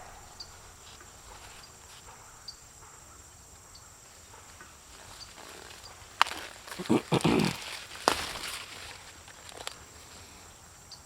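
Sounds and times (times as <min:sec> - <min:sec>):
insects chirring: 0:00.0 - 0:11.0
faint rustling: 0:04.0 - 0:10.5.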